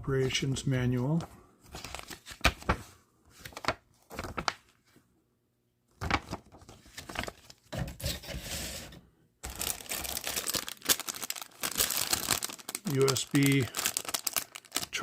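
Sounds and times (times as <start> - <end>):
plastic wrapping crinkling: 9.4 - 15.0.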